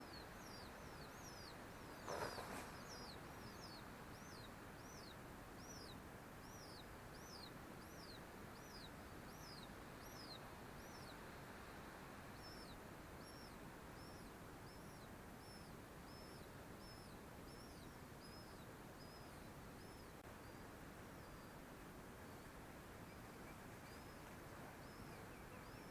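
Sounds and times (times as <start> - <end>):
bird chirping: 0.0 - 11.3, 12.4 - 21.6, 22.2 - 25.9
faint outdoor hiss: 0.0 - 25.9
brief rustle: 2.0 - 2.9.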